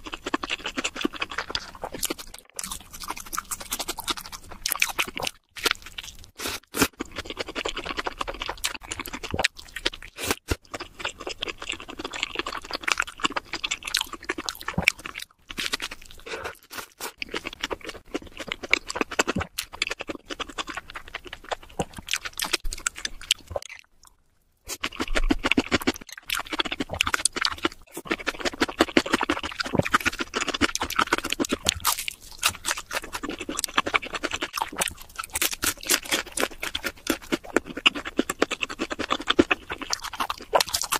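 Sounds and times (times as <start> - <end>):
crunchy chewing: 0.0 - 23.9, 24.7 - 40.9.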